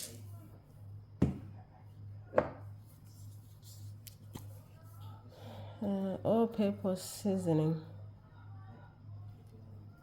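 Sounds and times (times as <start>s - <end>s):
kitchen knocks: 1.2s - 1.5s.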